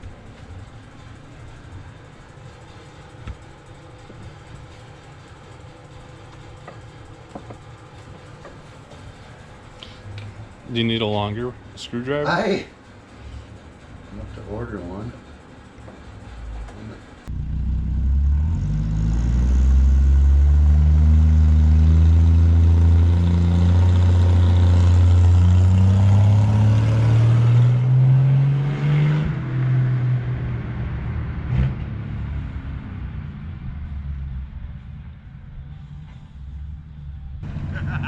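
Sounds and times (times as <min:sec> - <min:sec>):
car engine accelerating: 0:16.4 - 0:38.0.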